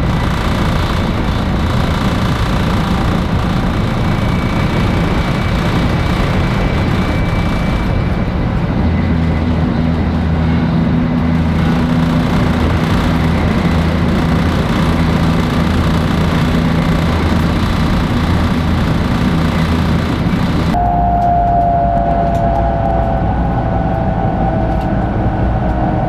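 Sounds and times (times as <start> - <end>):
train rushing rumble: 0.0 - 26.0
low steady hum: 0.9 - 26.0
steady higher tone: 20.7 - 26.0.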